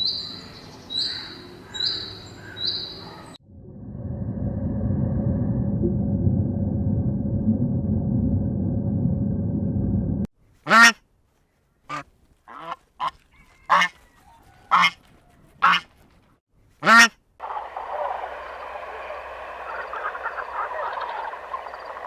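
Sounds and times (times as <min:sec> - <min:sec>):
steady low noise: 0:03.4 - 0:10.3
waterfowl honking calls: 0:11.9 - 0:14.0, 0:14.7 - 0:15.0, 0:15.6 - 0:15.9, 0:16.8 - 0:22.0.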